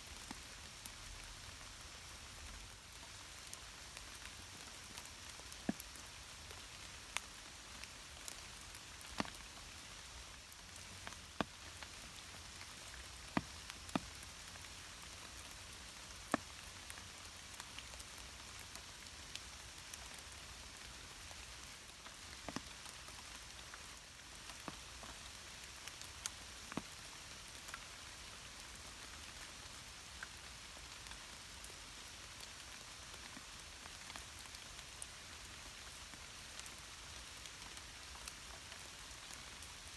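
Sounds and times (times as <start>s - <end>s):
light rain hiss: 0.0s - 39.9s
raindrops ticking: 2.5s - 20.2s.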